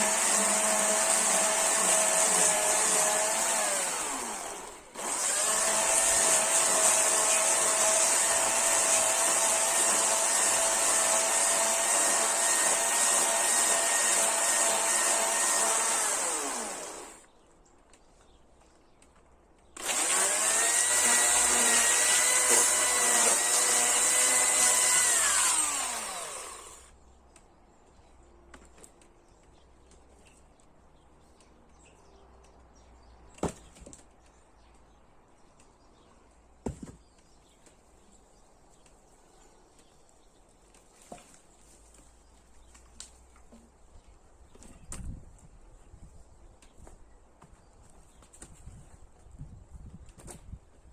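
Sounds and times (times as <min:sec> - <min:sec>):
electric chainsaw running: 0:00.0 - 0:17.3, 0:19.8 - 0:26.9.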